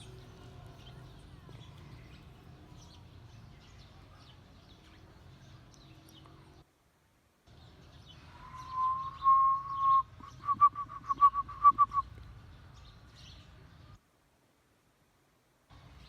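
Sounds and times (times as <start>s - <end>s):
snowcock whistled calls: 8.3s - 12.1s.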